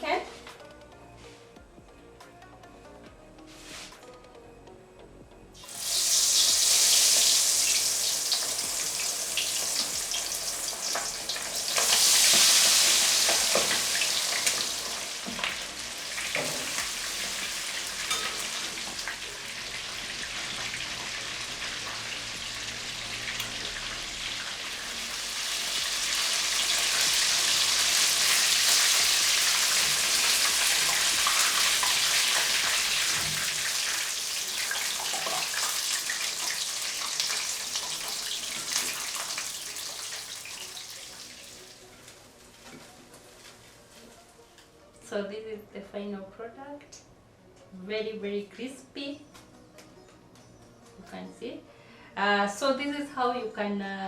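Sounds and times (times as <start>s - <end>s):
chicken deep-frying in oil: 5.6s - 41.8s.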